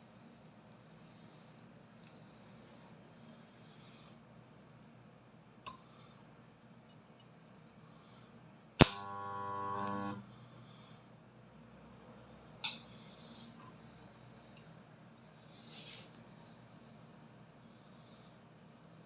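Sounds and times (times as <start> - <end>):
spot welder crack: 8.8 - 10.2
spot welder buzz: 8.8 - 10.3.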